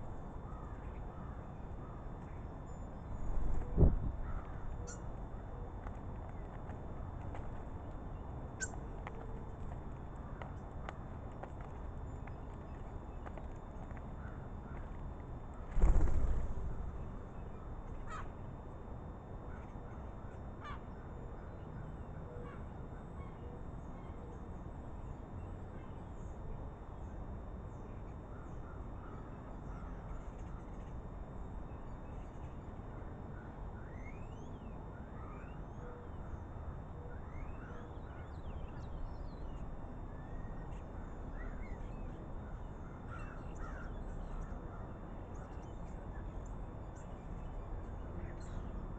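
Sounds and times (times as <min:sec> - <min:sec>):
crows cawing: 0:04.2 - 0:05.0, 0:14.2 - 0:14.9, 0:18.0 - 0:18.4, 0:42.8 - 0:44.8.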